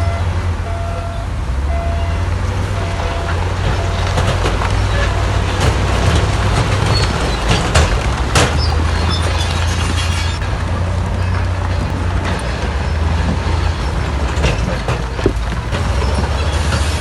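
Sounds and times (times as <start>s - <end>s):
short repeating beep: 0.0s - 2.2s, 2.8s - 4.2s
diesel machinery rumbling: 0.0s - 17.0s.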